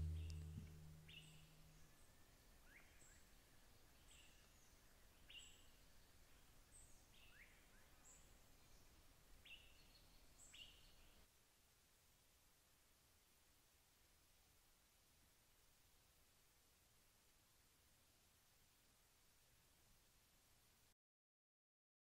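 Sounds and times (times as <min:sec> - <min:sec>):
bird chirping: 0:00.0 - 0:01.4.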